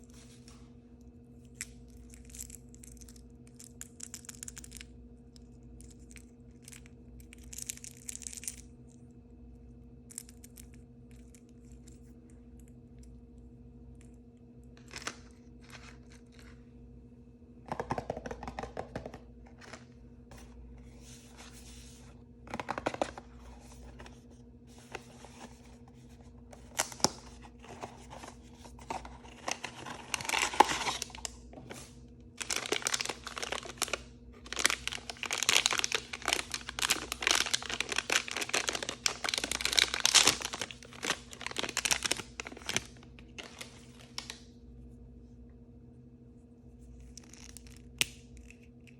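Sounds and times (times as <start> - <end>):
faint steady hum: 0.0 - 48.9
plastic packaging tearing and crinkling: 26.6 - 44.4.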